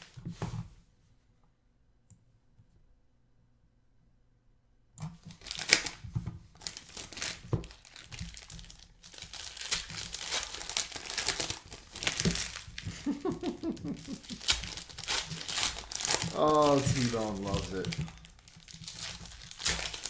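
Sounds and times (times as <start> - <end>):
plastic wrapping tearing and crinkling: 5.2 - 20.0.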